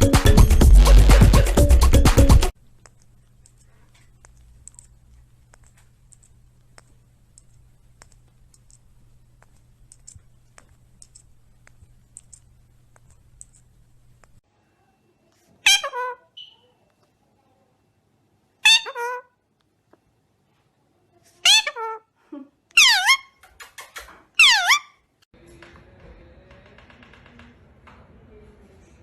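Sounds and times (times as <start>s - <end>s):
low steady hum: 2.6s - 15.3s
light clicks and taps: 2.8s - 14.4s.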